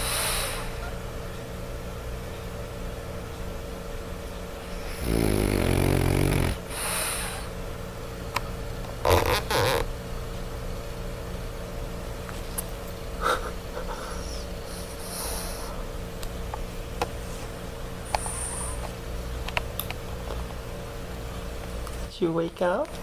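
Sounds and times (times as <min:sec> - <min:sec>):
hissing breath: 0:00.0 - 0:00.8, 0:04.8 - 0:07.6, 0:13.2 - 0:15.8, 0:18.1 - 0:18.8
dog snoring: 0:04.7 - 0:07.5
dog snorting: 0:04.8 - 0:06.7.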